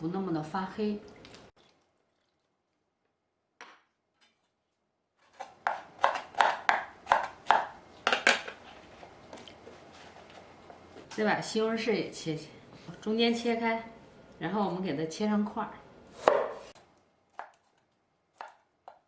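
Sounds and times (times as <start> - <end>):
soft handling noise: 8.4 - 11.1.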